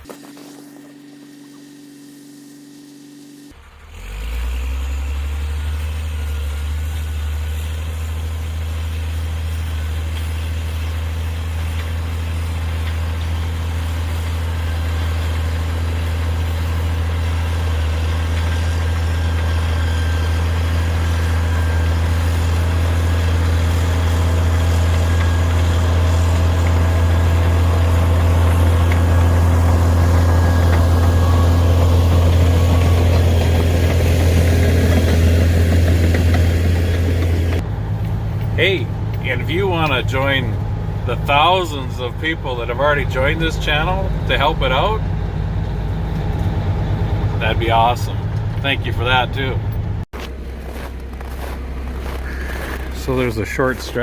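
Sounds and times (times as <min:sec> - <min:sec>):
bulldozer diesel engine humming: 0:00.0 - 0:54.0.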